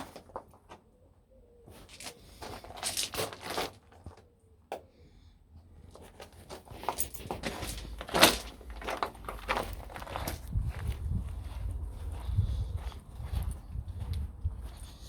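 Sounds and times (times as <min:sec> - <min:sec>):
footsteps crunching on rough path: 0:06.0 - 0:15.0.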